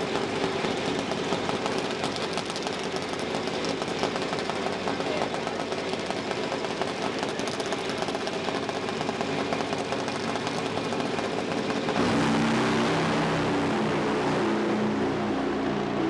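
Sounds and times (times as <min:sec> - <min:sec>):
rough pulsing car engine: 0:00.0 - 0:16.0
smooth engine shifting pitch: 0:09.7 - 0:16.0.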